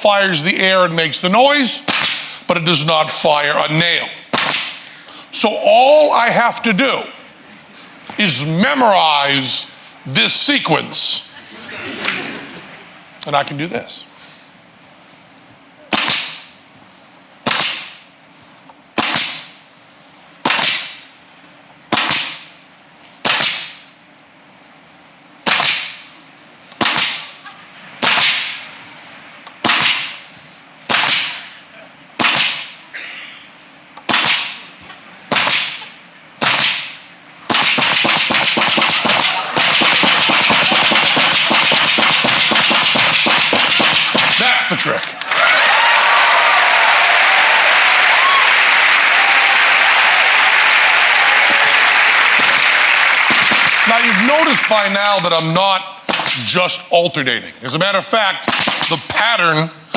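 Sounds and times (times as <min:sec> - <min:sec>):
pneumatic nail gun firing: 0:36.4 - 0:44.4, 0:58.5 - 0:59.0
applause: 0:45.0 - 0:54.9.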